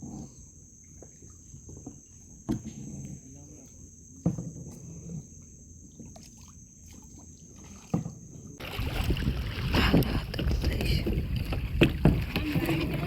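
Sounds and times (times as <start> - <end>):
paddle knocking on hull: 4.2 - 4.8, 7.9 - 13.0
water trickling: 6.0 - 13.0
water splashing and rushing: 6.3 - 13.0.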